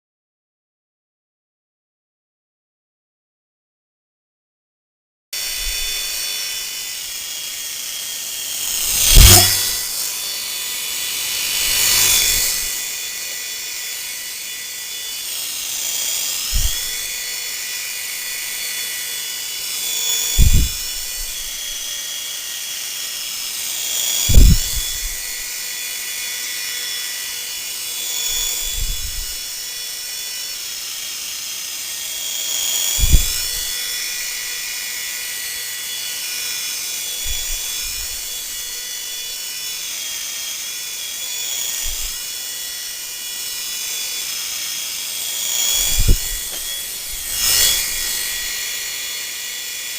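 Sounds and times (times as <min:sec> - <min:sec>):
toy helicopter motor whining: 0:05.4 - 0:49.9
low thumps: 0:08.7 - 0:09.9.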